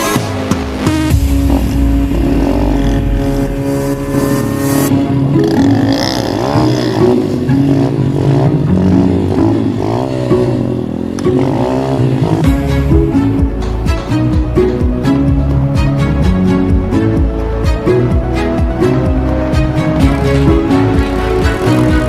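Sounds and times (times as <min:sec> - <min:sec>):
dirt bike engine revving: 0:01.1 - 0:15.5, 0:18.9 - 0:22.0.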